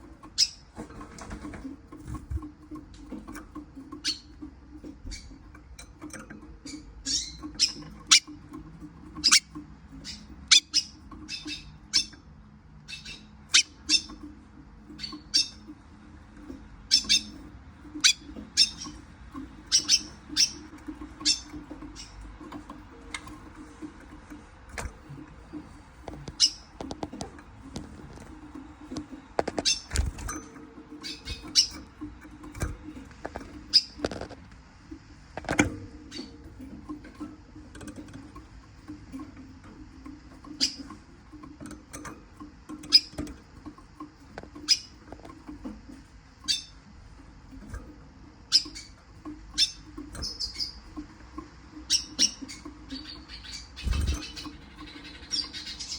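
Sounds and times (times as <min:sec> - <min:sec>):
bird chirping: 0:00.2 - 0:05.4, 0:06.0 - 0:15.8, 0:16.8 - 0:34.4, 0:40.5 - 0:41.0, 0:42.7 - 0:43.3, 0:44.5 - 0:45.8, 0:46.4 - 0:46.9, 0:48.5 - 0:55.9
sharp clicks and scratchy taps: 0:16.4 - 0:46.4.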